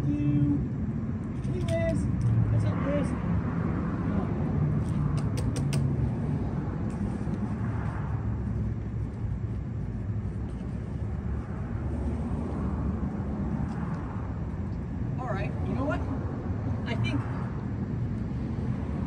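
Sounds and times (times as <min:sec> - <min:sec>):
vehicle motor rumble: 0:00.0 - 0:19.0
quick clicks: 0:04.9 - 0:05.9.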